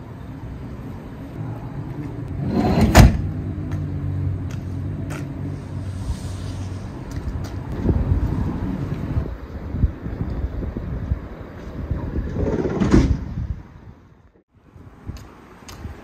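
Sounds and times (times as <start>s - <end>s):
vehicle engine humming: 0.0s - 10.6s
loud thump: 2.7s - 3.3s, 12.6s - 13.4s
rising scrape: 5.4s - 9.2s.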